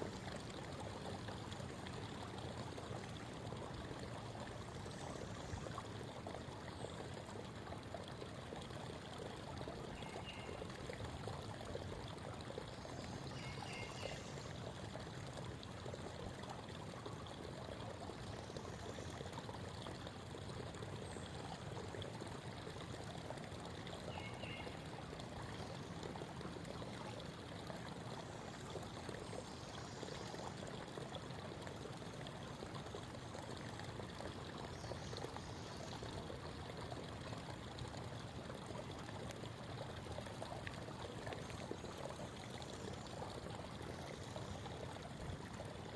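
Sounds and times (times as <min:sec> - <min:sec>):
creek water babbling over stones: 0:00.0 - 0:45.9
faint bird chirps: 0:24.1 - 0:24.7.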